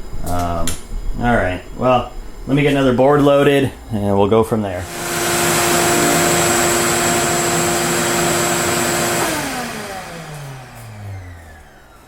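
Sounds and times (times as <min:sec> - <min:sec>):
electric motor whining: 0:04.8 - 0:12.0.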